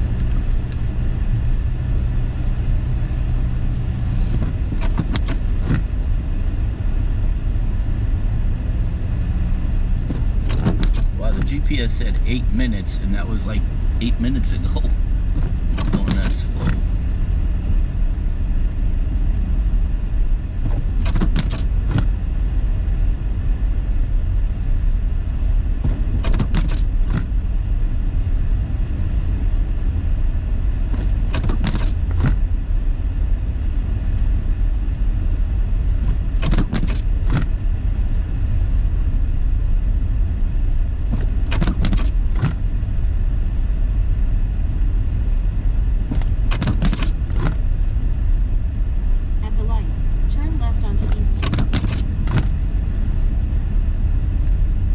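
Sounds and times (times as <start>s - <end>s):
car road and engine rumble: 0.0s - 54.9s
windshield wipers swishing: 0.1s - 5.9s, 10.0s - 11.6s, 13.4s - 17.0s, 20.6s - 22.2s, 25.8s - 27.4s, 30.9s - 32.5s, 35.9s - 37.6s, 41.0s - 43.3s, 46.0s - 47.7s, 50.5s - 52.6s.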